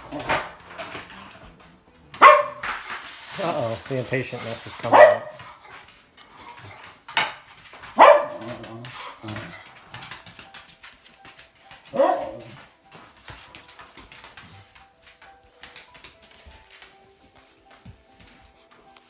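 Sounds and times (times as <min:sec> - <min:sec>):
dog barking: 0:02.2 - 0:02.6, 0:04.9 - 0:05.4, 0:08.0 - 0:08.6, 0:11.9 - 0:12.5.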